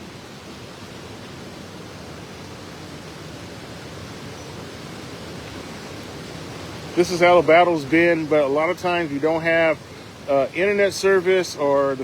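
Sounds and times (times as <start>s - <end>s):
river water rushing by waterfall: 0.0s - 12.0s.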